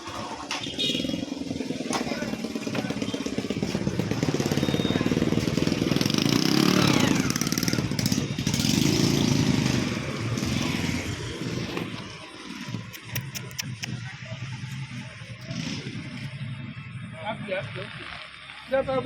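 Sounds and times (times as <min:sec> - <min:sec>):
small engine running: 0:00.0 - 0:16.4
sharp clicks: 0:12.6 - 0:14.1.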